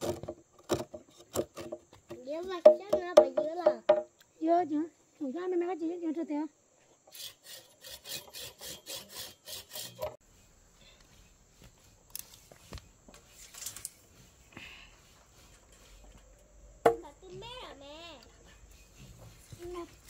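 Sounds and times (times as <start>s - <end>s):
knocks: 0.1s - 4.1s, 16.8s - 17.5s
handsaw cutting wood: 7.1s - 10.2s.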